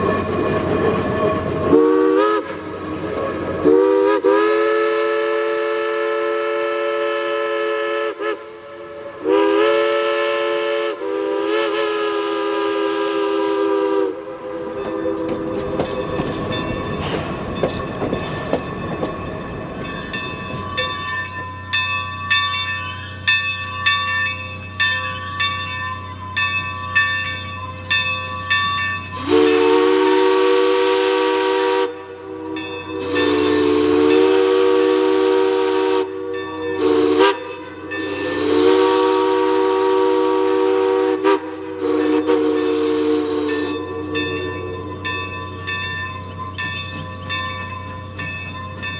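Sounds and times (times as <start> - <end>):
steam hiss: 0.0 - 21.5, 29.0 - 46.0
rhythmic locomotive exhaust: 0.0 - 48.9
steam locomotive chime whistle: 0.0 - 48.9.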